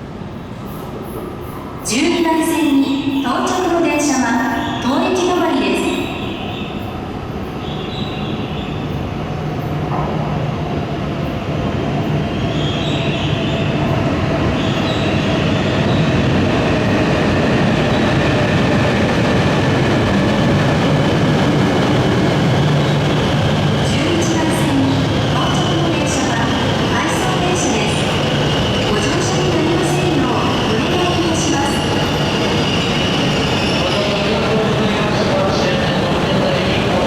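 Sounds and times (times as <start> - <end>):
train rumbling: 0.0 - 37.0.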